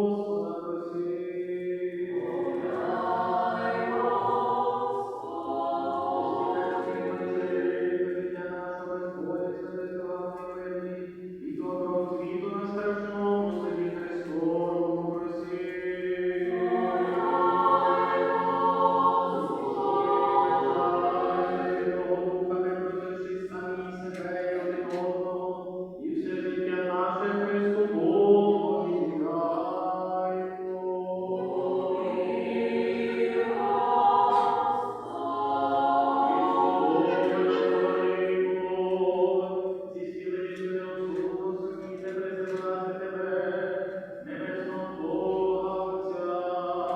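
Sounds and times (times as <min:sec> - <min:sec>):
choir chanting in harmony: 0:00.0 - 0:46.9.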